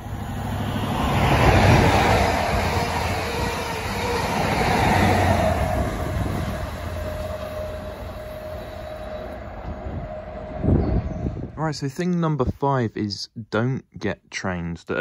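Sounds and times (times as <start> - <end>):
steady high note from train: 0.0 - 11.6
train passing with rumble: 0.0 - 12.0.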